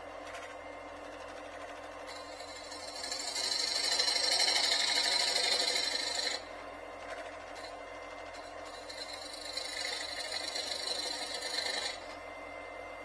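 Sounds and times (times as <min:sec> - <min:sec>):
wood lathe running: 0:02.1 - 0:06.5, 0:08.7 - 0:12.2
tool hissing on spinning wood: 0:02.8 - 0:06.4, 0:09.0 - 0:12.0.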